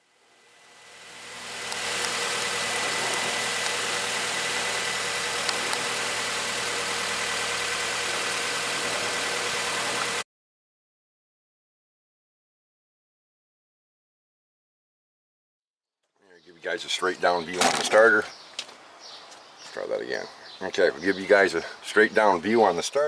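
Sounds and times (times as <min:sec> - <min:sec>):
car engine idling: 0:00.0 - 0:10.2
thin steady whine: 0:00.0 - 0:10.2.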